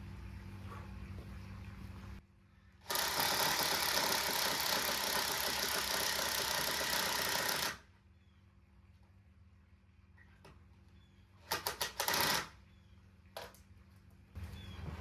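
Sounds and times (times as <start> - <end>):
power tool running: 2.9 - 7.9.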